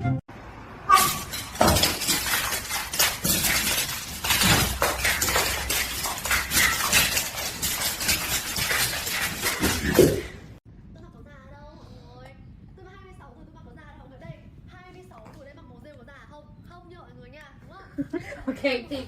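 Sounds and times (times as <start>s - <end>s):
small hard objects clattering: 0.9s - 10.4s.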